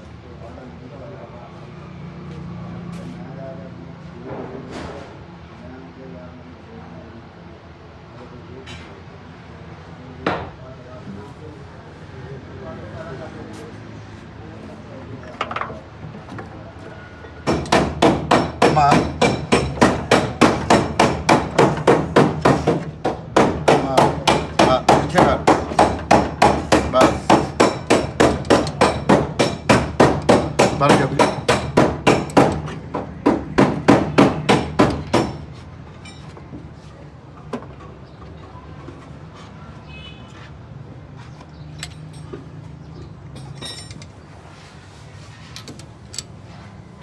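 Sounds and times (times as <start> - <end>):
hammer striking metal: 17.4 - 36.2.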